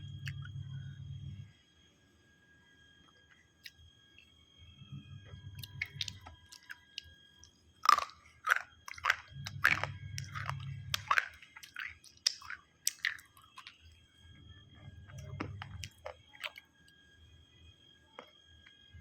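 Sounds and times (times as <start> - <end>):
person chewing crunchy food: 0.2 - 0.5, 5.6 - 7.1, 7.8 - 14.0, 15.0 - 16.6.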